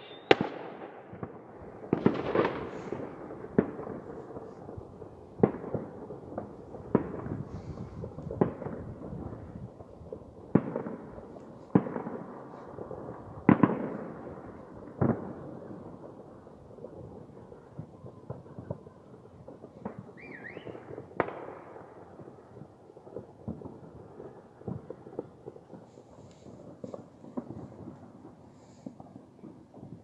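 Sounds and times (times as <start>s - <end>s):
fireworks bangs: 0.0s - 30.0s
fireworks crackle: 0.0s - 30.0s.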